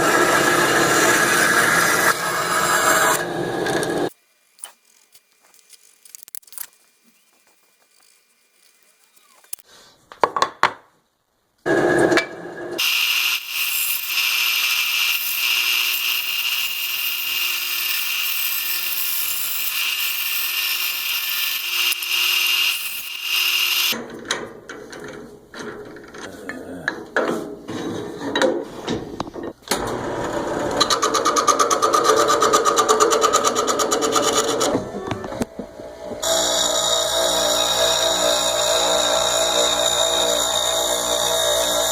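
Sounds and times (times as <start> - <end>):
rough rhythmic power tool: 0.0 - 4.1, 12.8 - 24.0, 29.8 - 41.9
power tool cutting wood: 0.0 - 6.0, 12.8 - 24.0, 29.7 - 41.9.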